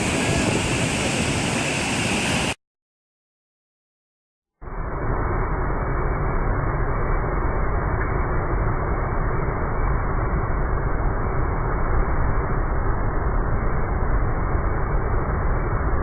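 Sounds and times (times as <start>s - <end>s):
strong wind buffeting microphone: 0.0s - 2.6s.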